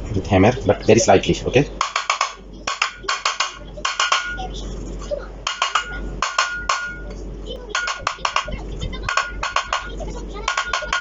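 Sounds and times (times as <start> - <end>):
hammer tapping on metal: 1.8 - 4.5, 5.4 - 11.0.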